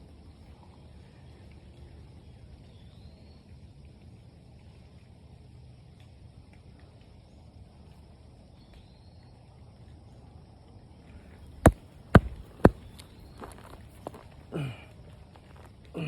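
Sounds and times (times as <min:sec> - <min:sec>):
foot thumping the ground: 0:11.4 - 0:14.2.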